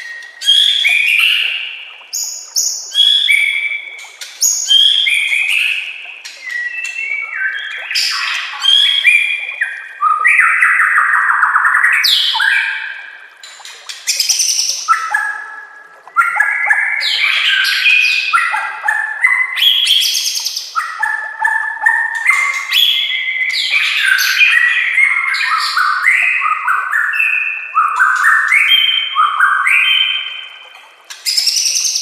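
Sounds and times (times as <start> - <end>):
songbird singing whistled phrases: 0.0 - 3.8, 4.4 - 12.8, 19.2 - 30.6.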